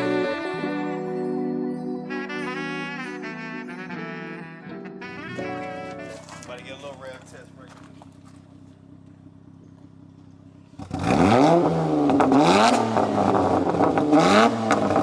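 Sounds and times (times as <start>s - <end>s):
car engine idling and revving: 6.7s - 15.0s.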